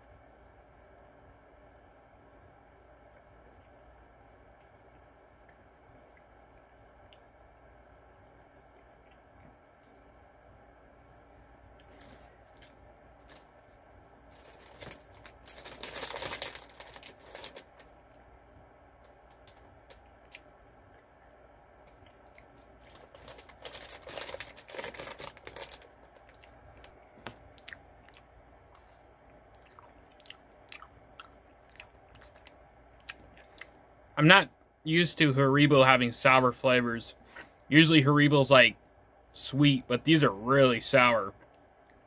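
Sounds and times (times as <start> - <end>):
person chewing gummy candy: 19.3 - 33.8.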